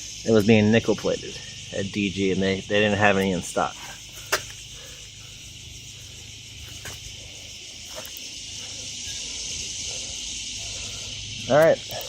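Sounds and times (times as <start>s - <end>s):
high-pitched insect chorus: 0.0s - 12.0s
faint clicks: 11.6s - 12.0s.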